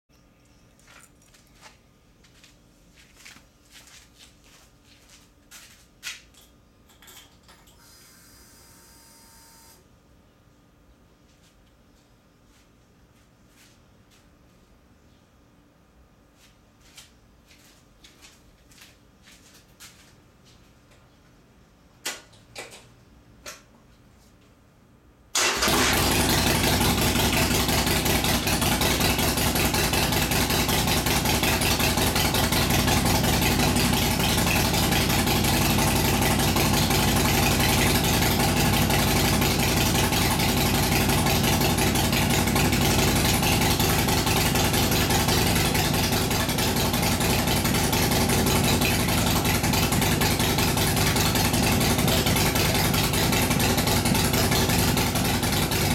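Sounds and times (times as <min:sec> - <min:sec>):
motorcycle engine idling: 0:25.7 - 0:55.9.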